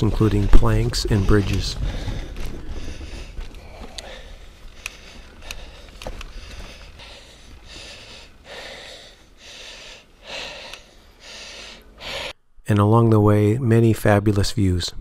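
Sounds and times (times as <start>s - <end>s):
person breathing hard: 1.1s - 12.4s
sharp clicks: 10.6s - 10.9s.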